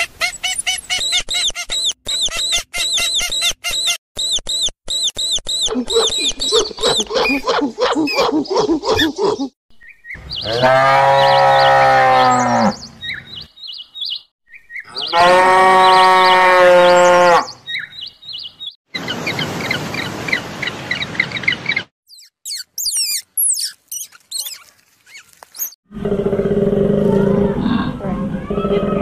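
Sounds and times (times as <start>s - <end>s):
rapid high chirping: 0.2s - 9.5s, 22.1s - 25.8s
small birds chirping: 0.2s - 15.2s, 17.5s - 25.8s
cows mooing: 10.4s - 12.8s, 15.0s - 17.5s.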